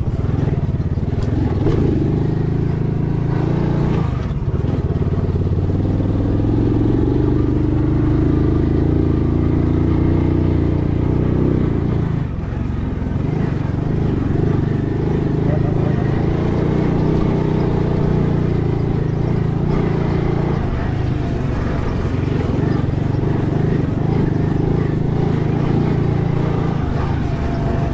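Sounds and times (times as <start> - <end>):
vehicle engine running: 0.0 - 27.9.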